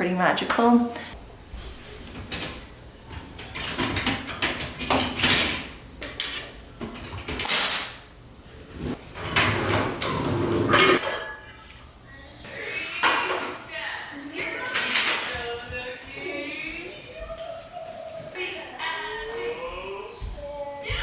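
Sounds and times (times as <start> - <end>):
dishes clattering: 9.1 - 11.7, 13.0 - 13.7, 14.4 - 15.6.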